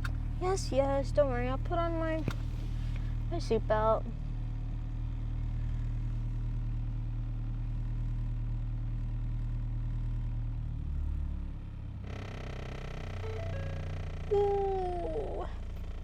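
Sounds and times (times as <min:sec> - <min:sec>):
car engine idling: 0:00.0 - 0:07.5, 0:11.9 - 0:16.0
steady high tone: 0:12.1 - 0:16.0.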